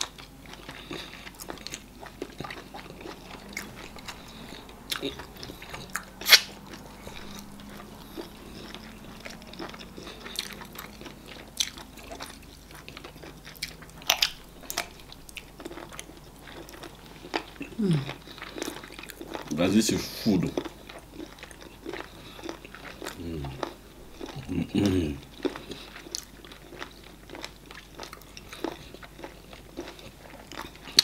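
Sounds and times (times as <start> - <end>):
people chewing and smacking: 0.0 - 31.0.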